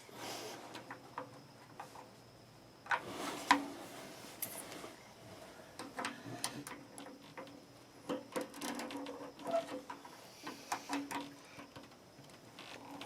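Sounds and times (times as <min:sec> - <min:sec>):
faint hum: 0:00.0 - 0:13.0
small clicks taps and scrapes: 0:05.8 - 0:13.0.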